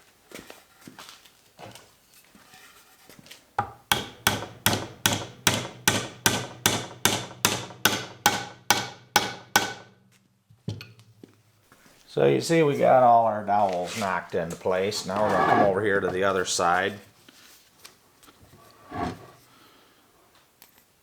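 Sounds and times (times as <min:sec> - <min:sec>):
hammer tapping wooden dowels: 0:03.6 - 0:09.9.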